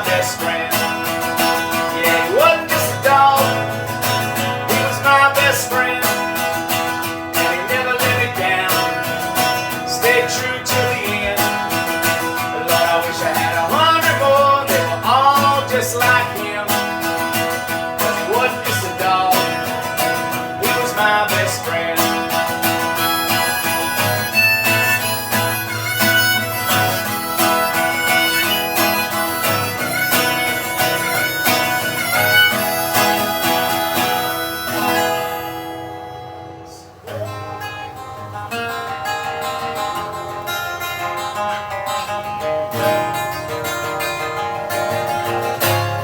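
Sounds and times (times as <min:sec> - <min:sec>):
acoustic guitar: 0:00.0 - 0:46.0
harmonica: 0:00.0 - 0:46.0.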